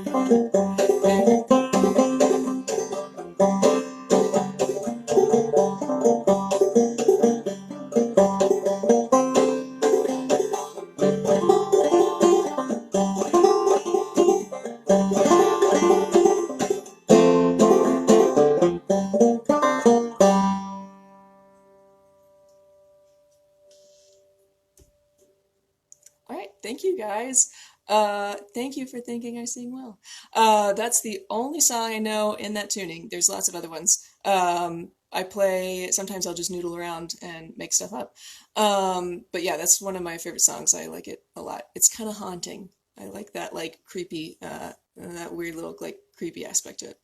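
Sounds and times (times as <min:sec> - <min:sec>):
banjo playing: 0:00.0 - 0:24.2.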